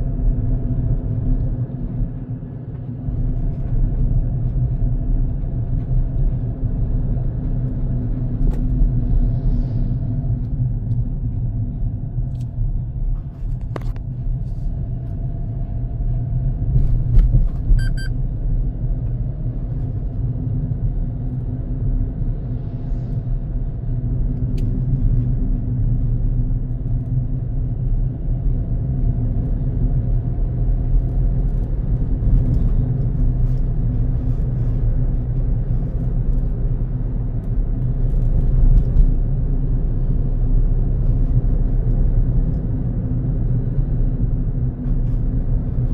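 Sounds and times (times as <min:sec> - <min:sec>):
road and engine rumble: 0:00.0 - 0:45.9
brief high beep: 0:17.7 - 0:18.2.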